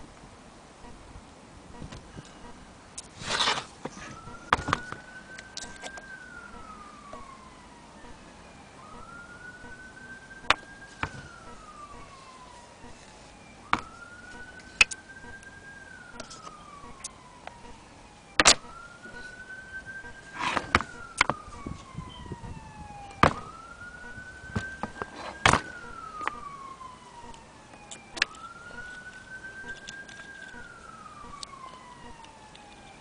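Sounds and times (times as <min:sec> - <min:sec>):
distant wailing siren: 0:00.7 - 0:33.0.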